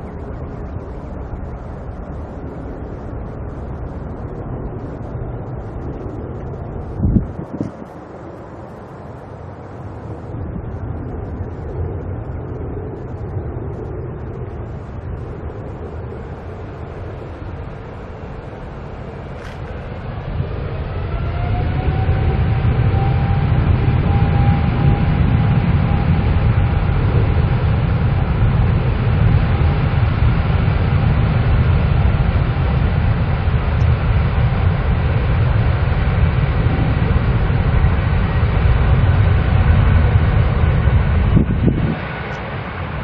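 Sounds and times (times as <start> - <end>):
jet engines rumbling: 0.0 - 43.0
thin engine whine: 18.7 - 29.7.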